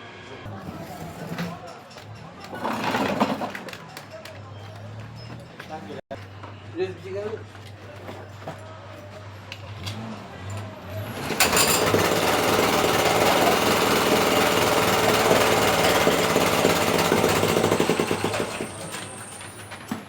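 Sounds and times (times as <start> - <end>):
brush cutter engine running: 11.2 - 18.8.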